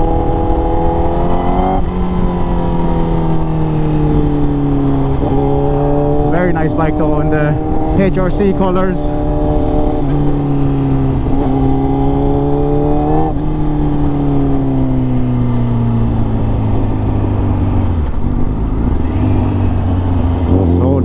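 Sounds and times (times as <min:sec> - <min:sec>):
raspy motorcycle engine revving: 0:16.2 - 0:21.0.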